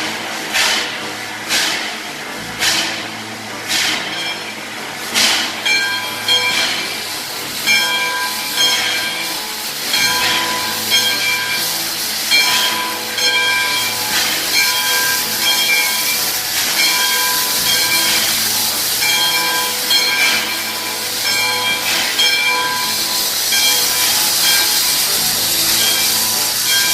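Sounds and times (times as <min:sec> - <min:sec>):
steam hissing: 0:00.0 - 0:26.9
high ringing tone: 0:07.6 - 0:26.9.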